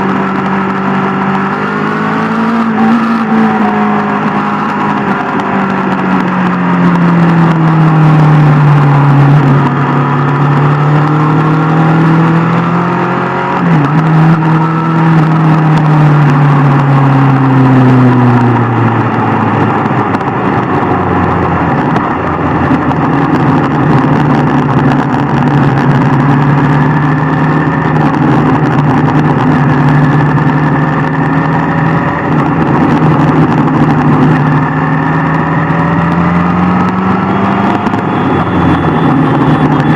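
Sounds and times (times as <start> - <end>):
motorcycle engine running: 0.0 - 39.9
wind and road rush: 0.0 - 39.9.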